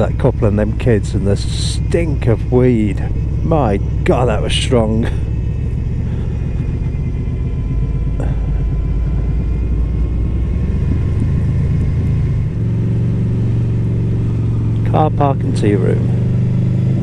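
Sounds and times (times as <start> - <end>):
motorcycle engine running: 0.0 - 17.0
wind rumble on microphone: 5.0 - 13.3.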